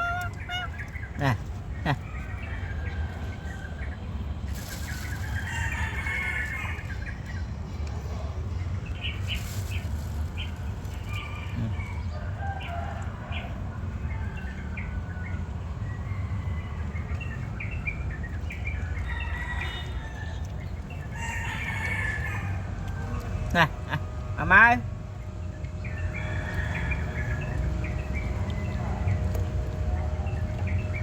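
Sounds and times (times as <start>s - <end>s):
birds chirping: 0.0s - 31.0s
steady low rumble: 22.5s - 31.0s.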